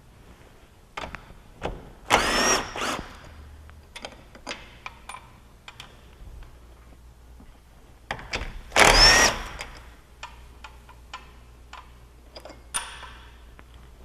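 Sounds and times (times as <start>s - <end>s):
power tool whine: 2.1s - 3.2s, 8.8s - 9.6s
metallic clicks and knocks: 9.6s - 13.8s.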